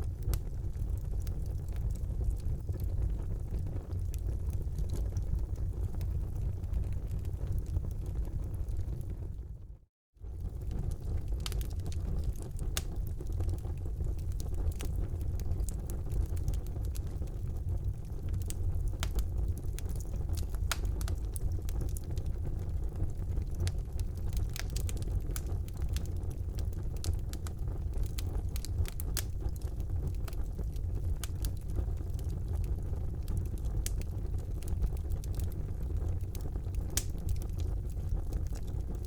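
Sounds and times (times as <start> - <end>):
wood fire crackling: 0.0 - 9.6, 10.2 - 39.0.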